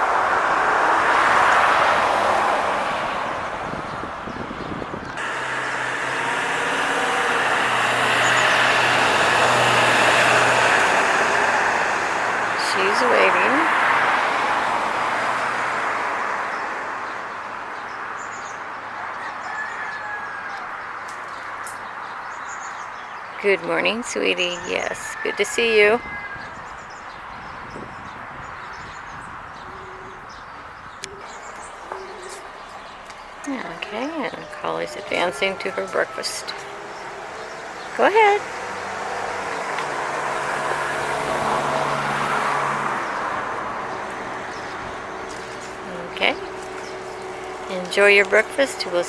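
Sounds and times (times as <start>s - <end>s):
vehicle engine hum: 0.0s - 17.6s, 30.9s - 49.0s
outdoor background noise: 0.0s - 49.0s
tyre and road noise: 0.0s - 49.0s.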